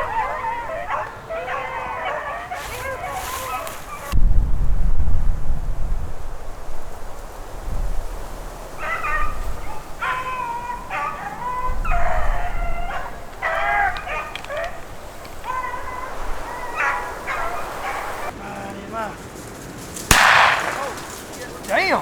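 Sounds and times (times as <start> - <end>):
beagles baying: 0.0 - 4.2, 8.6 - 22.0
wind rumbling on microphone: 0.0 - 22.0.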